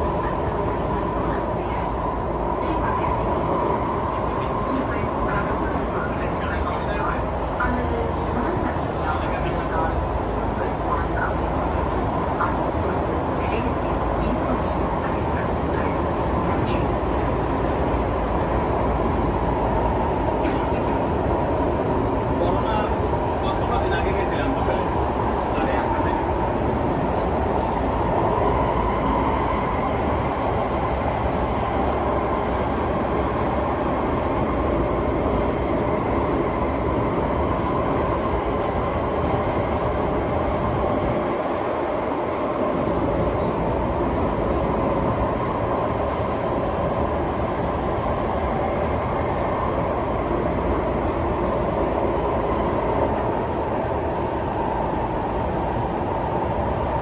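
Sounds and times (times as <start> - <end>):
train wheels rumbling on rails: 11.9 - 57.0.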